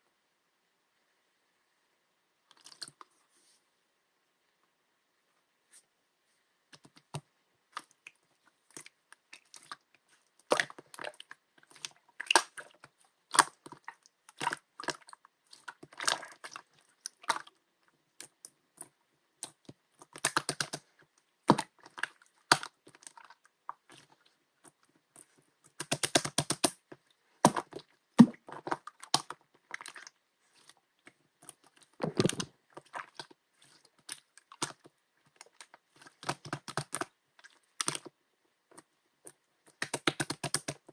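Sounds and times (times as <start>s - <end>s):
slime squished by hand: 10.4s - 17.5s.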